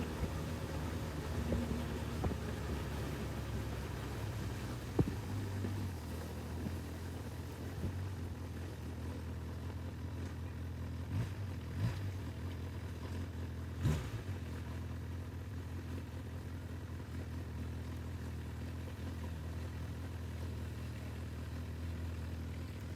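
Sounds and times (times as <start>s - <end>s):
motorcycle engine idling: 0.0s - 13.8s, 14.4s - 22.9s
short thumps: 4.9s - 5.7s.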